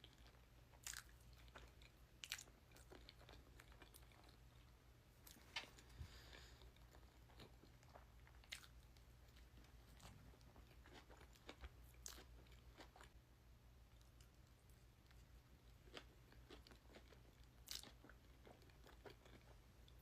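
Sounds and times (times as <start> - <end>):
person chewing food: 0.0 - 13.2, 13.9 - 20.0.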